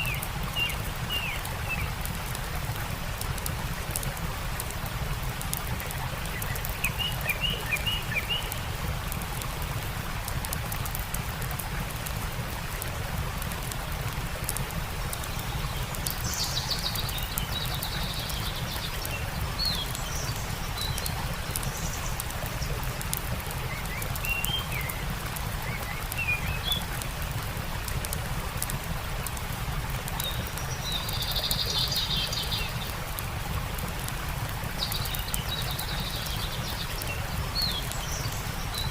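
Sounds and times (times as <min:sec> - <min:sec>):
campfire crackling: 0:00.0 - 0:38.9
stream rushing: 0:00.0 - 0:38.9.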